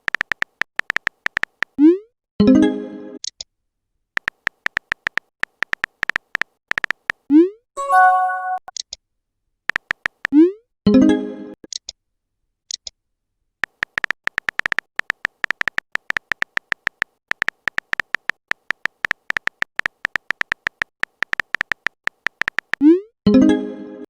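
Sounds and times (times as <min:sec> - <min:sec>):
short electronic beeps: 0:07.8 - 0:08.7.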